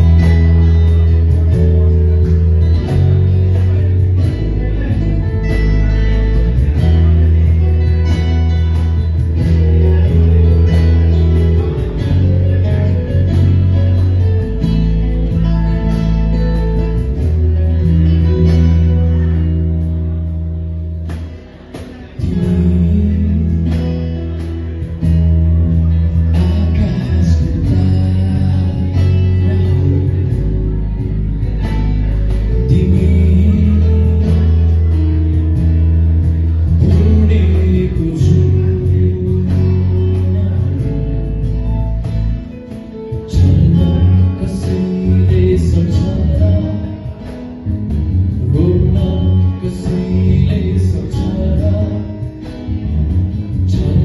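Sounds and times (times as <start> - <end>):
acoustic guitar playing: 0.0 - 54.0
bass notes: 0.0 - 54.0
person singing: 21.1 - 54.0.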